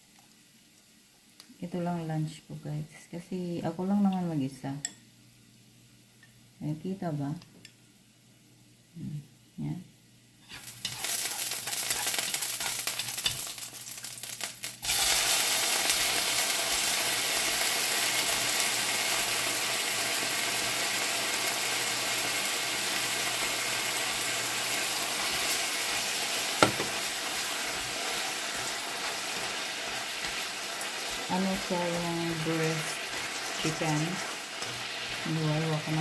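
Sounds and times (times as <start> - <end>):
chicken sizzling in a wok: 0.0 - 2.0, 10.3 - 36.0
chopsticks stirring: 10.4 - 13.7, 26.6 - 36.0.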